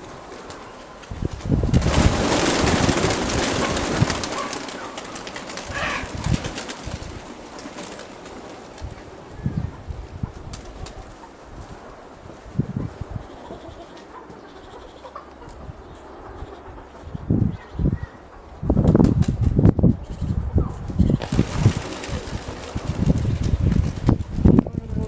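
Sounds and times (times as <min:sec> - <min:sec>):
wind buffeting microphone: 0:00.0 - 0:04.9, 0:05.5 - 0:07.7, 0:08.3 - 0:13.9, 0:14.6 - 0:25.0
wings flapping: 0:00.0 - 0:09.1, 0:10.3 - 0:11.8, 0:18.8 - 0:19.6, 0:21.0 - 0:24.6
pigeons cooing: 0:02.0 - 0:08.4.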